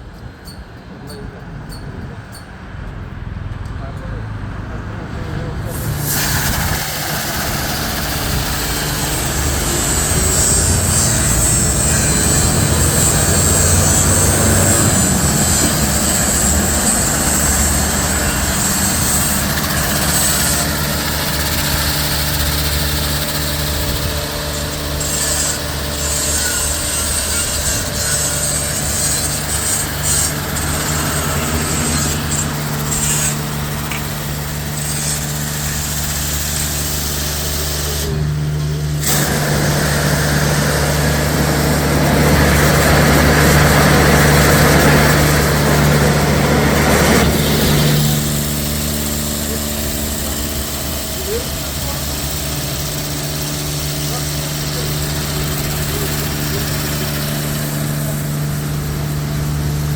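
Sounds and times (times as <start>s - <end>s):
brushes and water spray hiss: 5.7s - 38.2s
motor hum: 5.7s - 59.9s.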